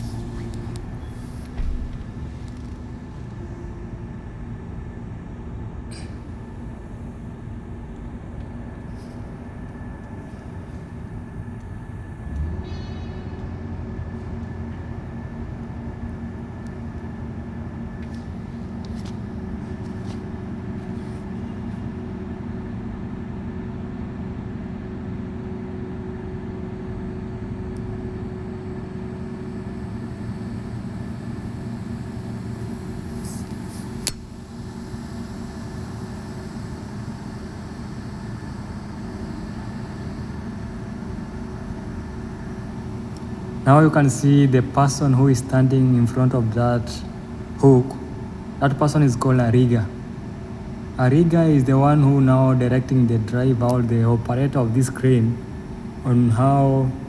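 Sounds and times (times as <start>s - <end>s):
diesel engine humming: 0.0s - 14.2s
sharp click: 33.1s - 34.5s.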